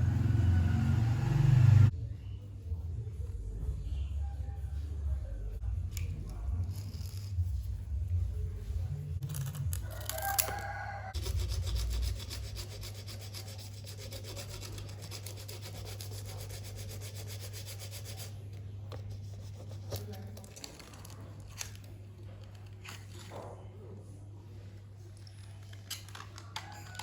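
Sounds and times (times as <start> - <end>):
steady low hum: 0.0 - 9.8
fast rubbing strokes: 11.2 - 20.2.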